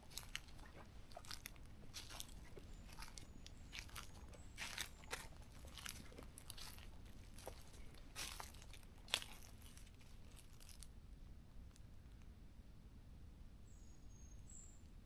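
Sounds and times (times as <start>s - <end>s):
footsteps crunching on dry leaves: 0.0s - 10.9s.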